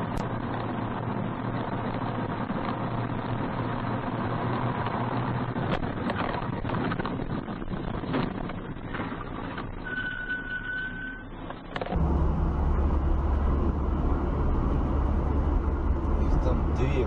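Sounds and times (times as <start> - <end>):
car engine and road noise: 0.0 - 17.0
low hum: 11.4 - 17.0.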